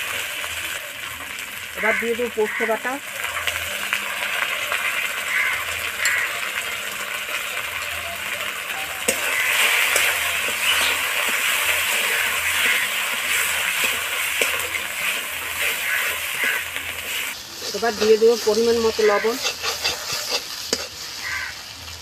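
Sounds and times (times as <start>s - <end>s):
spice paste sizzling in oil: 0.0s - 22.0s
metal spatula scraping pan: 9.0s - 21.3s.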